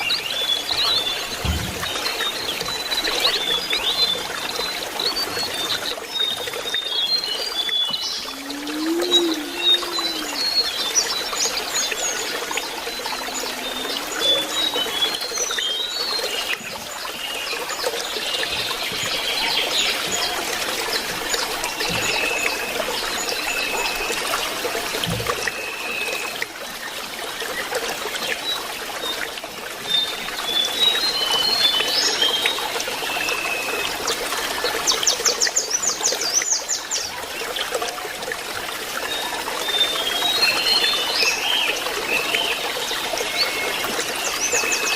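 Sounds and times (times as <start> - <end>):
bird singing: 0.0 - 17.6
running water trickling: 0.0 - 44.9.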